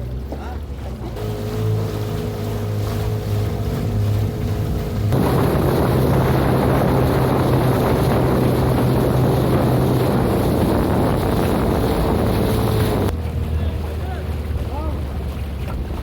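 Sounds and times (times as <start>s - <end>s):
boat motor running: 0.0s - 16.0s
rushing water: 0.0s - 16.0s
wind on microphone: 3.4s - 13.1s.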